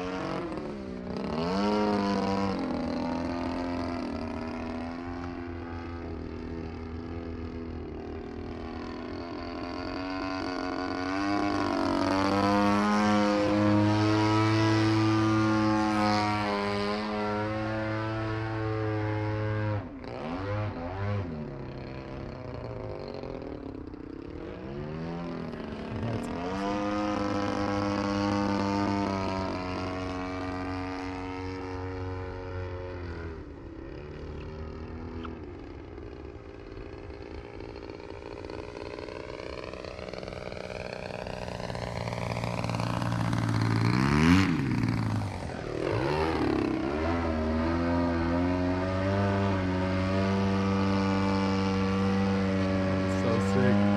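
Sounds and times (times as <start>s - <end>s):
model plane engine: 0.0s - 53.9s
plane passing close: 22.6s - 53.9s.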